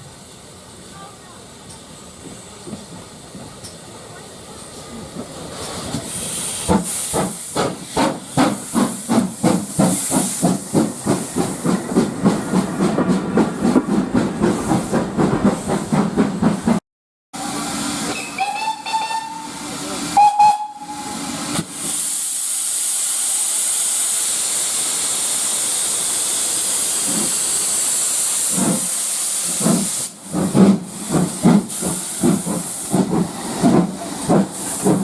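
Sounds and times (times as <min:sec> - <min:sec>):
steam locomotive exhaust chuffing: 0:04.4 - 0:16.8, 0:17.4 - 0:35.0
hiss of escaping steam: 0:05.4 - 0:12.6, 0:20.9 - 0:35.0
steam whistle blasts: 0:17.4 - 0:21.5.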